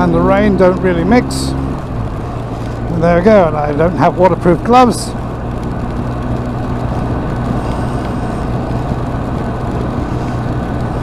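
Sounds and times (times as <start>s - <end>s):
motorcycle engine cruising: 0.0s - 11.0s
road noise: 0.0s - 11.0s
wind rush: 5.1s - 11.0s.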